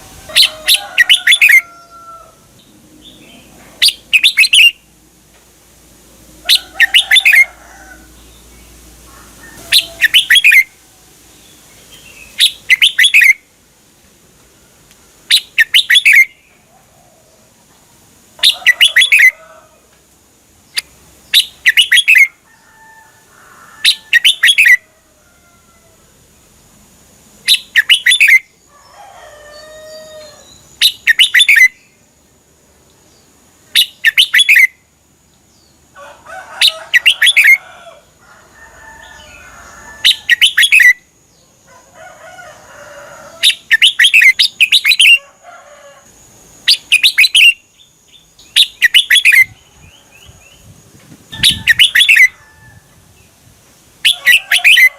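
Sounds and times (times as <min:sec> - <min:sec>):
bird singing: 0:00.0 - 0:04.9, 0:06.5 - 0:13.5, 0:15.3 - 0:16.8, 0:18.4 - 0:19.6, 0:20.6 - 0:22.7, 0:23.8 - 0:24.9, 0:27.4 - 0:32.0, 0:32.9 - 0:35.9, 0:36.6 - 0:37.6, 0:39.0 - 0:41.8, 0:43.3 - 0:45.3, 0:46.6 - 0:52.4, 0:54.0 - 0:54.9.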